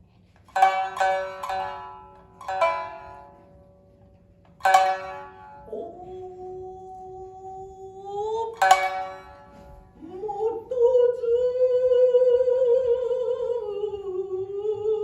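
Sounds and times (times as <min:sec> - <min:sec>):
shamisen plucked: 0:00.5 - 0:06.5, 0:08.3 - 0:10.6.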